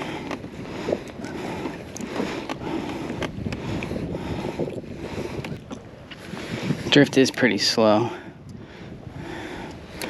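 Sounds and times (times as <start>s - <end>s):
water lapping against hull: 0.0s - 7.0s
wind on microphone: 0.0s - 10.0s.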